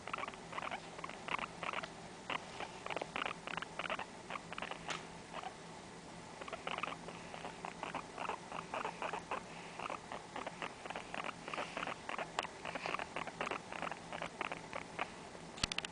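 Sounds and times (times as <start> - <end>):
guinea pig scratchy clicks: 0.1 - 5.5, 9.8 - 15.0.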